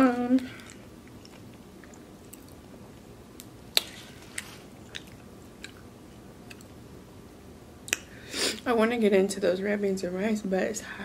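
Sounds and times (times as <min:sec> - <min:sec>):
person chewing food: 0:00.4 - 0:06.8
wet mouth clicks: 0:07.9 - 0:08.1.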